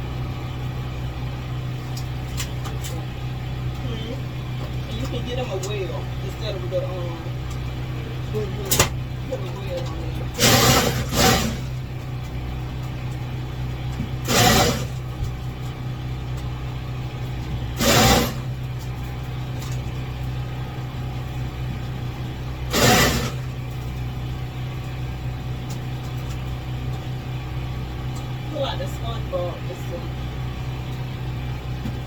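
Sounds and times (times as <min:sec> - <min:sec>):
low machine hum: 0:00.0 - 0:32.0
loud noise bursts: 0:14.3 - 0:15.0, 0:17.8 - 0:18.5, 0:22.7 - 0:23.5.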